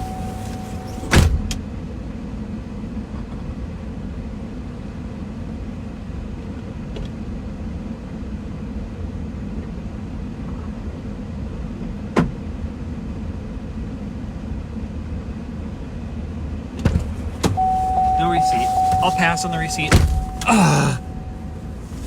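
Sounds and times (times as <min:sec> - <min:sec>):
car engine idling: 0:00.0 - 0:01.0, 0:17.1 - 0:22.0.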